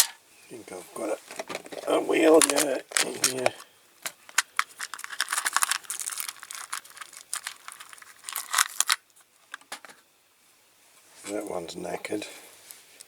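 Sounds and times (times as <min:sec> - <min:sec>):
rummaging through toy parts: 0:01.2 - 0:10.0.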